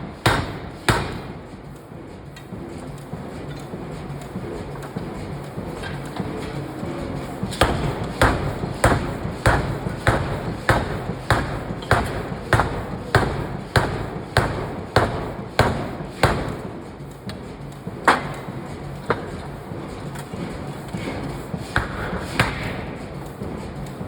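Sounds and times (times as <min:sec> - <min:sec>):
low machine hum: 0:00.0 - 0:24.0
forging hammer striking steel: 0:00.2 - 0:01.4, 0:07.6 - 0:16.7, 0:21.8 - 0:22.8.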